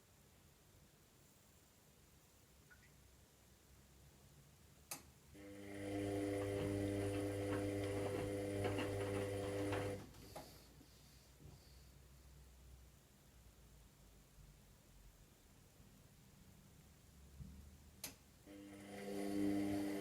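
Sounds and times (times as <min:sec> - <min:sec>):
washing machine motor humming: 0:05.4 - 0:10.1, 0:18.5 - 0:20.0.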